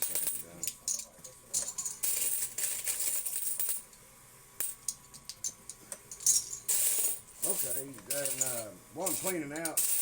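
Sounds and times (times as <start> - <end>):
coins clinking: 0.0 - 3.8, 6.1 - 10.0.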